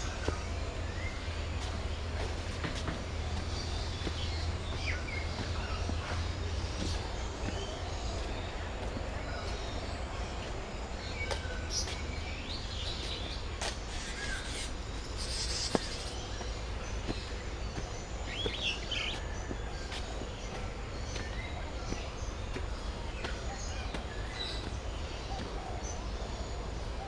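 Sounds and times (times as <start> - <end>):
birds chirping and squawking: 0.0 - 19.5.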